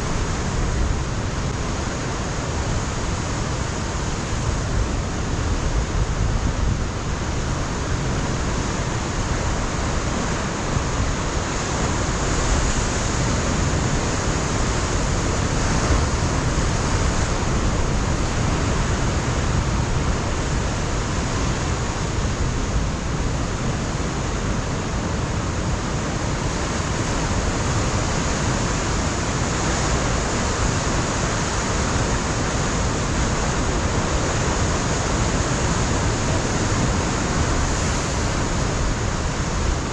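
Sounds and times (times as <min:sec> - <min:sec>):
wind rumbling on microphone: 0:00.0 - 0:39.9
surf breaking on rocks: 0:33.5 - 0:39.9.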